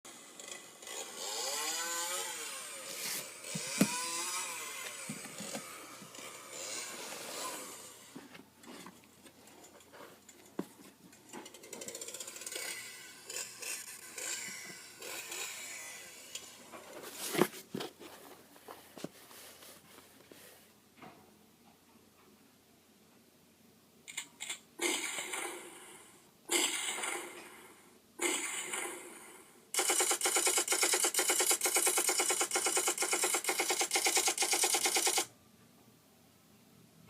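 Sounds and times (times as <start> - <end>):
rustling and rubbing handling noise: 2.9 - 4.2, 6.8 - 11.2, 16.7 - 20.9.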